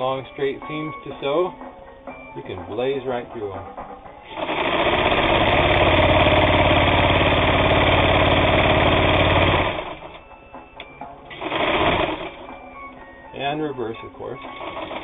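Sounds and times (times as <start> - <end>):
sewing machine running fast: 4.3 - 10.2, 11.3 - 12.5, 14.4 - 15.0.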